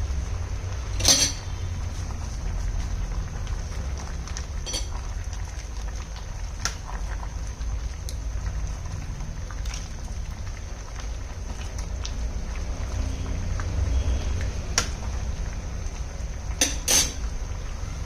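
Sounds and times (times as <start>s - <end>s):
soup bubbling in a pot: 0.0s - 18.0s
sharp pops and ticks: 5.8s - 10.0s.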